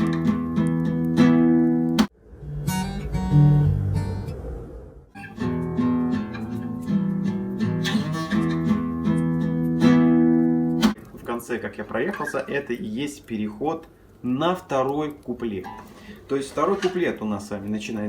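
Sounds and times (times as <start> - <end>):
strummed guitar chords: 0.0 - 4.5, 5.1 - 11.0
classical guitar notes: 0.0 - 11.0.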